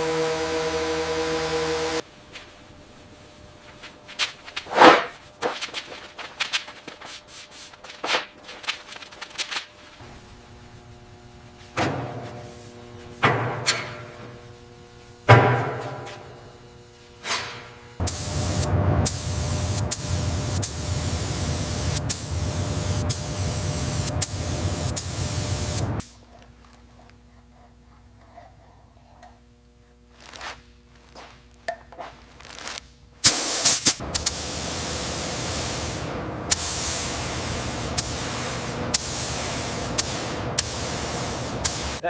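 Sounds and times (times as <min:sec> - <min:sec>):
spray gun hissing: 0:18.0 - 0:26.0, 0:33.2 - 0:42.0.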